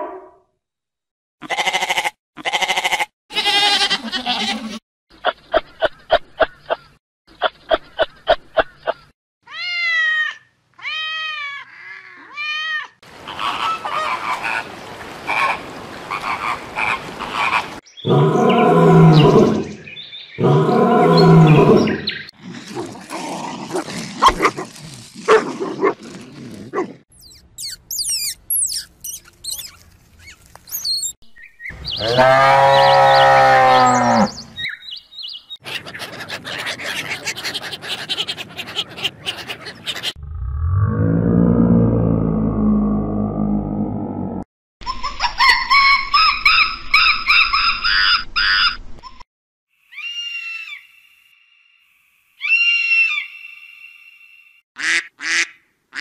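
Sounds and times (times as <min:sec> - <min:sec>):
animal calls: 0:10.9 - 0:19.8, 0:35.6 - 0:40.2.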